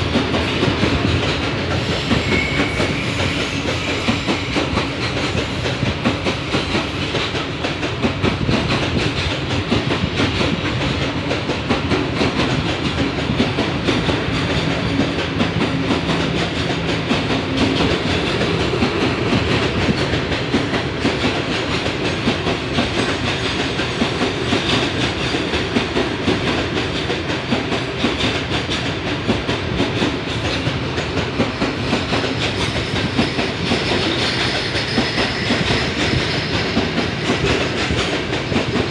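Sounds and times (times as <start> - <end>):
train wheels on rails: 0.0 - 38.9.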